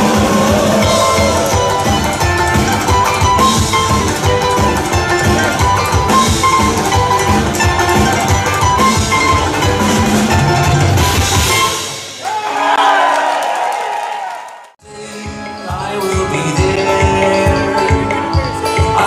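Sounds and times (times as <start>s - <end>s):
picked melody line: 0.0s - 12.1s, 14.8s - 19.0s
drum beat: 0.0s - 12.8s
live band playing: 0.0s - 12.8s, 14.8s - 19.0s.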